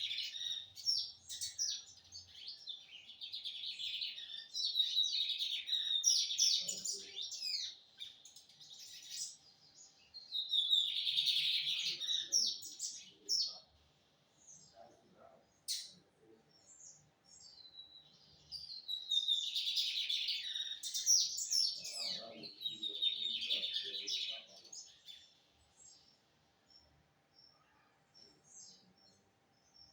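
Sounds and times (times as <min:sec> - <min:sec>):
bird chirping song: 0:00.0 - 0:29.9.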